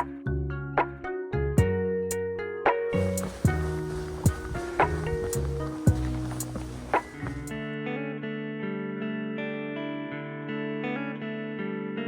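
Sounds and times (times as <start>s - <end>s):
bass and synth notes: 0.0s - 7.6s.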